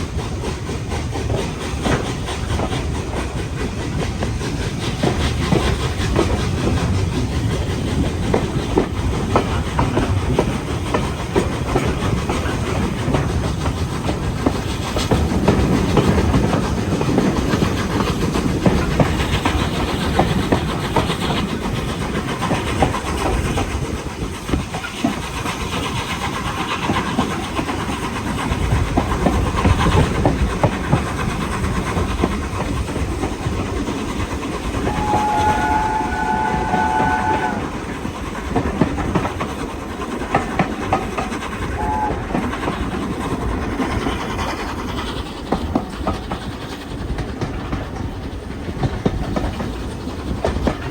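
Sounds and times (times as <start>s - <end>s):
steam train running: 0.0s - 50.9s
train whistle: 34.7s - 37.9s, 41.7s - 42.4s.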